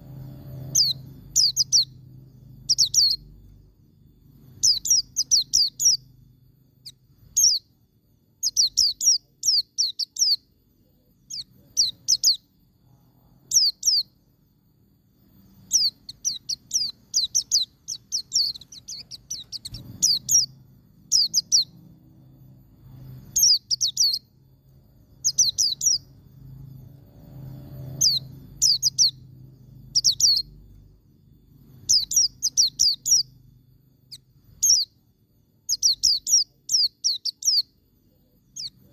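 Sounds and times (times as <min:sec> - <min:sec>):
bird singing sharp high notes: 0:00.0 - 0:03.3, 0:04.4 - 0:06.2, 0:15.4 - 0:21.8, 0:23.0 - 0:24.3, 0:25.2 - 0:26.2, 0:27.2 - 0:30.6, 0:31.6 - 0:33.4.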